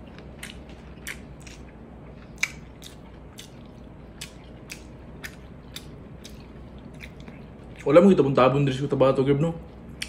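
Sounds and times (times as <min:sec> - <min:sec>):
wet chewing: 0:00.0 - 0:08.2
mouth clicks and lip smacks: 0:02.3 - 0:03.6.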